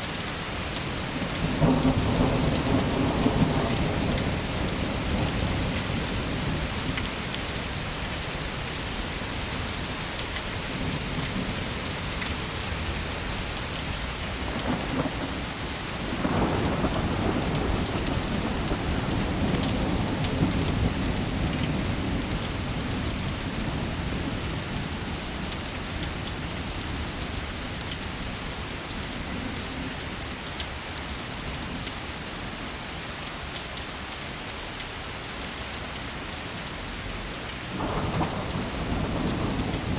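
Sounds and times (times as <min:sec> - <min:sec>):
heavy rain: 0:00.0 - 0:39.9
rumbling thunder: 0:01.2 - 0:07.2, 0:13.9 - 0:27.6, 0:37.7 - 0:39.9.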